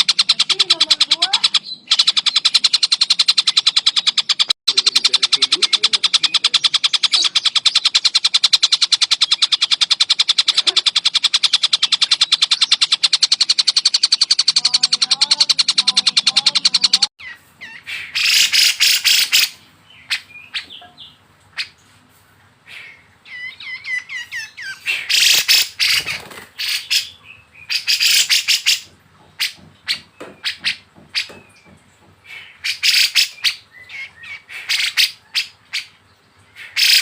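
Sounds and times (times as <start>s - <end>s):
bird trilling: 0.0s - 21.8s, 22.6s - 37.0s
bird chirps: 0.0s - 37.0s
harsh buzzy bird call: 14.4s - 21.8s, 22.6s - 31.3s, 32.2s - 37.0s.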